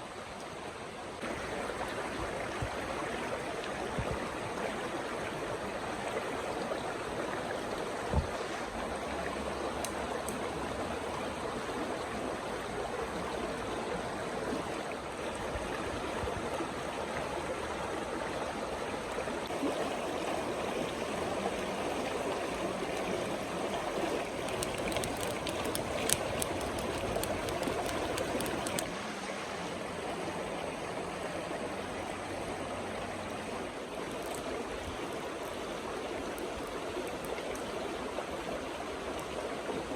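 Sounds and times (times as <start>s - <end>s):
light clicks: 24.4s - 28.9s.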